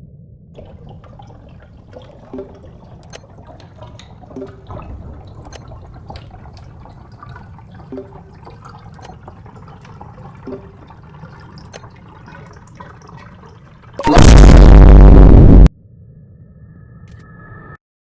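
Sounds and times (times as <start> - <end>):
faint clicks and drips: 0.6 - 14.1
loud distorted noise blast: 14.0 - 15.7.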